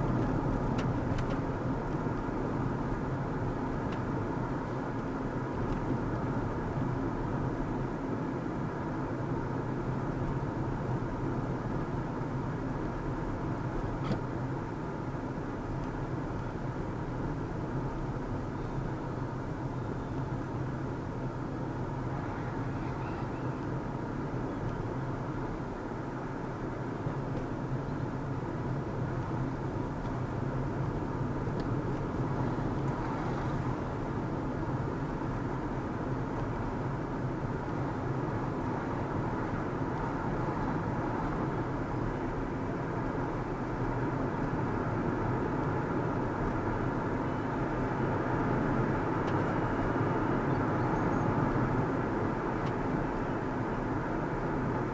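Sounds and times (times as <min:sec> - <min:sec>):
car driving tyre and engine noise: 0:00.0 - 0:54.9.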